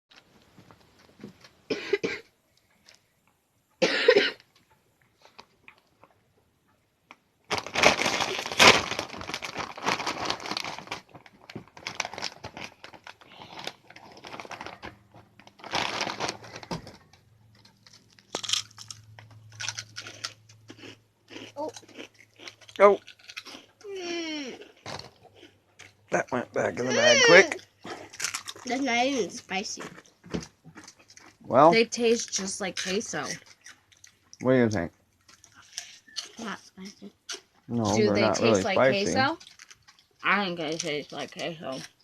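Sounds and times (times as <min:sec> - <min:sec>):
person coughing: 0:01.7 - 0:02.3, 0:03.8 - 0:04.4
snack bag rustling: 0:07.5 - 0:23.8, 0:26.8 - 0:28.8, 0:38.8 - 0:42.0.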